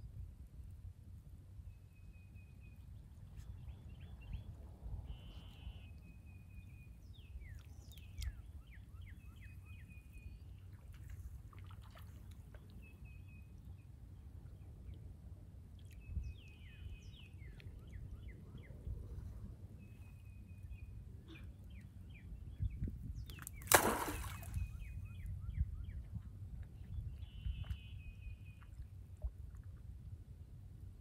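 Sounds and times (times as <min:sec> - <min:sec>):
low outdoor background rumble: 0:00.0 - 0:23.8.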